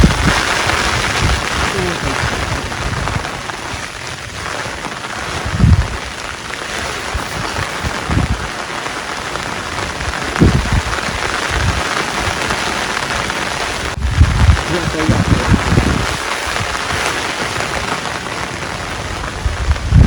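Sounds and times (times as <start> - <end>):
heavy rain: 0.0 - 20.0
dull low thumps: 14.0 - 17.0.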